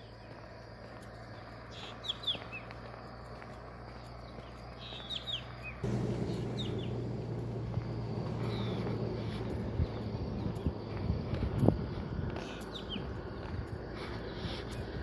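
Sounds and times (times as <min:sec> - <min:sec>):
birds chirping: 0:00.0 - 0:15.0
vehicle humming: 0:00.4 - 0:15.0
rushing noise: 0:05.8 - 0:10.5.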